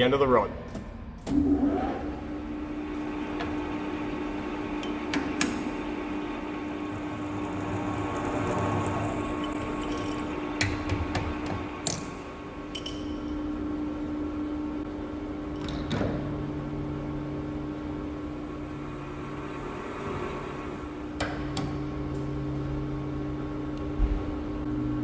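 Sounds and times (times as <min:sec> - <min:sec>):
lathe humming: 0:01.4 - 0:12.7.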